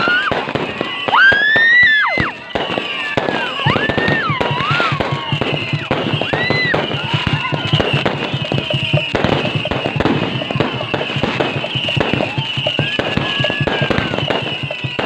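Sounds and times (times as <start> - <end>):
fireworks bangs and crackles: 0.0 - 15.0
whistling fireworks: 0.0 - 15.0.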